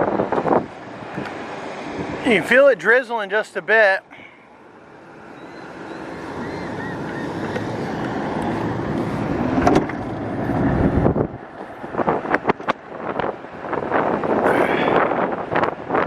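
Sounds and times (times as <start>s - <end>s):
wind on microphone: 0.0s - 2.3s, 5.4s - 16.0s.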